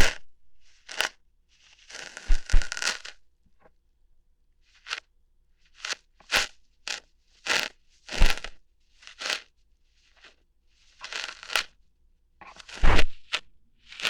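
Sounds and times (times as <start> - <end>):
crunchy ear hair plucking: 5.8 - 9.5, 10.9 - 11.8, 12.4 - 14.0.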